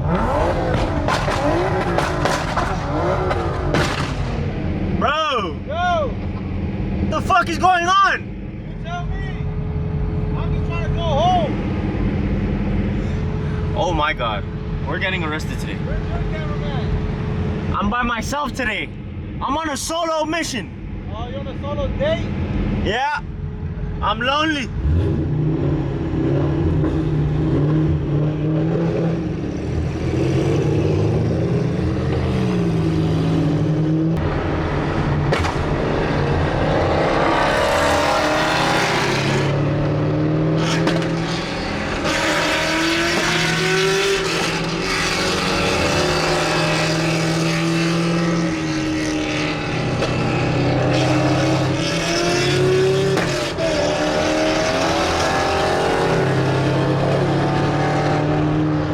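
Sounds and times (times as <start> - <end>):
cars driving past: 0.0 - 5.0, 24.7 - 58.9
car engines revving: 0.0 - 58.9.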